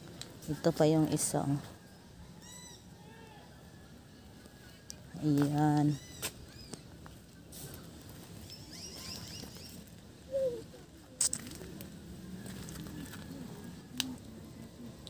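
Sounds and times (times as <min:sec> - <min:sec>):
birds chirping: 0:08.4 - 0:10.6.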